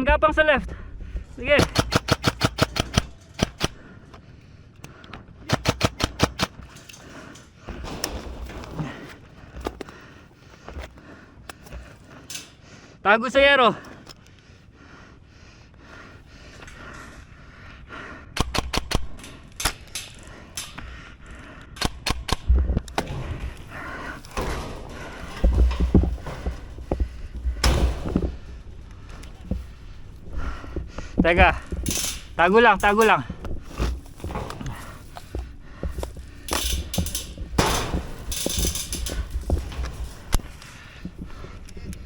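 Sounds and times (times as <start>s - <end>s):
airsoft guns firing: 1.6s - 3.8s, 5.4s - 6.7s, 18.4s - 19.8s.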